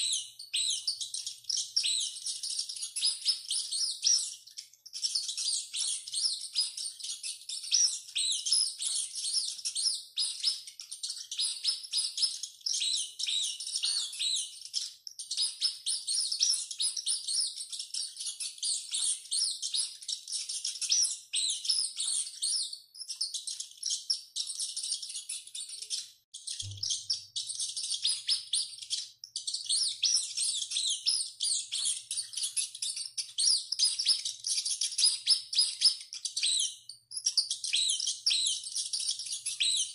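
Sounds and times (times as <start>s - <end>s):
small animals squeaking and chirping: 0.0s - 39.9s.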